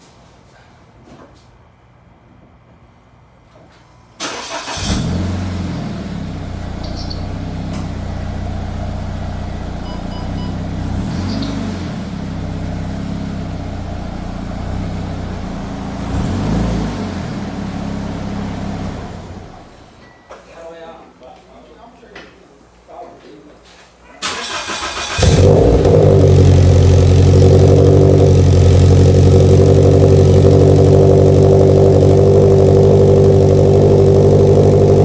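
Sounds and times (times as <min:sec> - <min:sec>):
car engine revving: 0:04.2 - 0:19.8, 0:24.4 - 0:35.0
car engine starting and idling: 0:04.2 - 0:20.0, 0:24.2 - 0:35.0.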